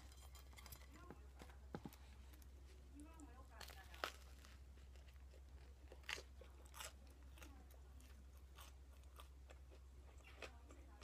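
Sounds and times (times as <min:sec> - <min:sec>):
crisp chewing crunches: 0:03.5 - 0:11.0.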